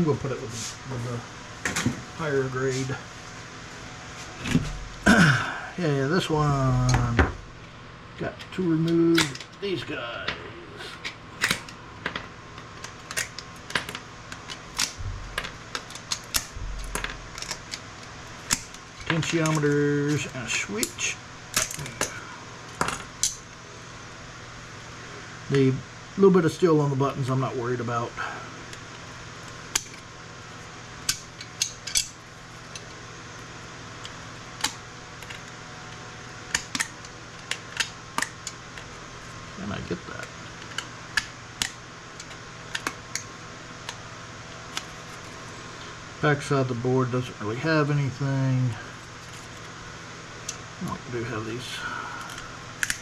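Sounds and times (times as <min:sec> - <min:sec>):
metallic clicks and snaps: 0:08.9 - 0:09.6, 0:11.0 - 0:11.8, 0:52.2 - 0:53.0
components snapping off circuit board: 0:09.1 - 0:09.6, 0:11.0 - 0:12.2, 0:12.8 - 0:17.8, 0:52.2 - 0:53.0.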